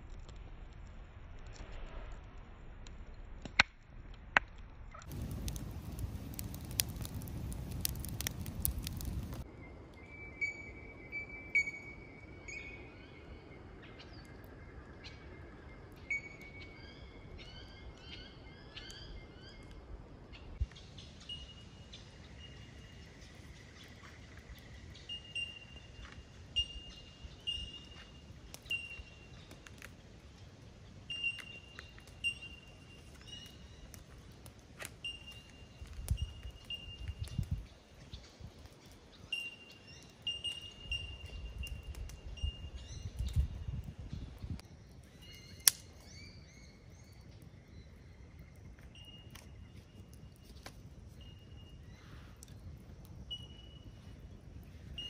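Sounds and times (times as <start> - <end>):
noise: 0.0 - 55.0
birds chirping and whistling: 20.8 - 29.6
sharp clicks: 45.6 - 45.9.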